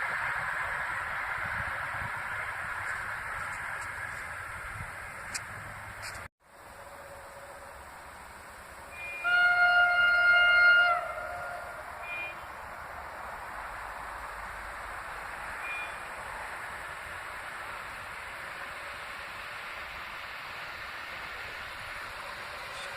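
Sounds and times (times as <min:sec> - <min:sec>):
steady rushing noise: 0:00.0 - 0:09.0, 0:11.7 - 0:22.9
train horn blast: 0:08.9 - 0:12.6.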